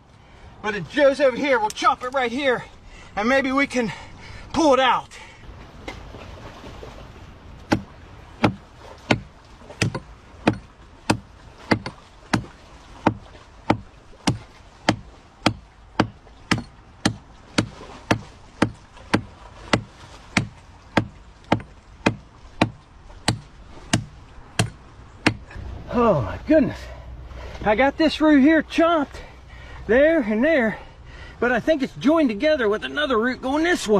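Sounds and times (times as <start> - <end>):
blade chopping tree root: 7.6 - 25.6.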